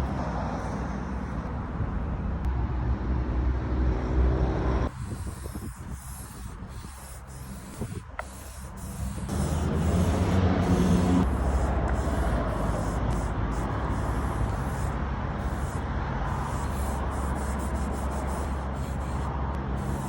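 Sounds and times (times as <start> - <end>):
low steady rumble: 0.0 - 20.0
paint brushing on wood: 4.9 - 20.0.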